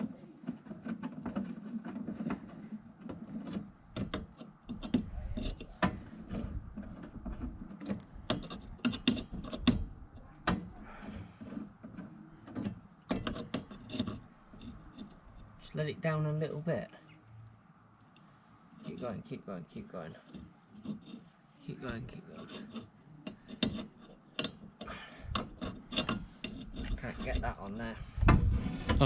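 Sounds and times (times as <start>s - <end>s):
metal parts clicking and knocking: 0.5s - 10.6s, 11.5s - 15.5s, 22.4s - 27.4s.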